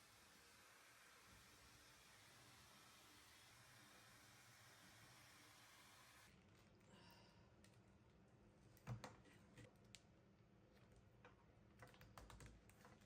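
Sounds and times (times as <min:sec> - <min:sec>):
faint clicks and taps: 0:10.7 - 0:13.0.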